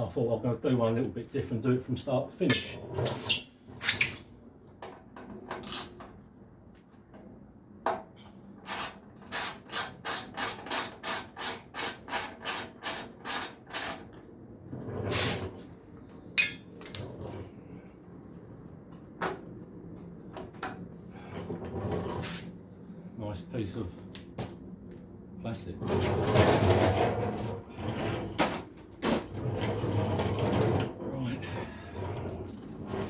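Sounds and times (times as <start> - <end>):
tool scraping: 25.8 - 33.0.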